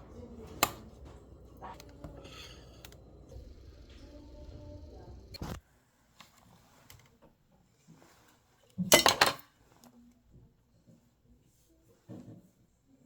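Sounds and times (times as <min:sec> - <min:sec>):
dishes and cutlery clinking: 0:00.0 - 0:04.0, 0:08.9 - 0:09.4.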